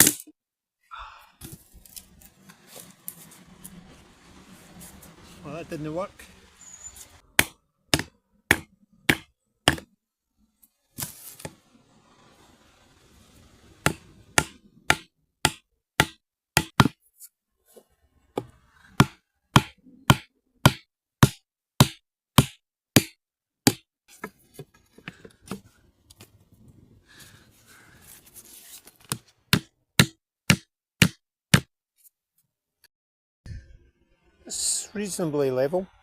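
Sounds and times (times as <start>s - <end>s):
rustle: 1.6s - 5.5s, 10.9s - 14.2s
axe chopping wood: 7.4s - 9.9s, 13.8s - 17.0s, 18.4s - 23.9s, 29.5s - 31.7s.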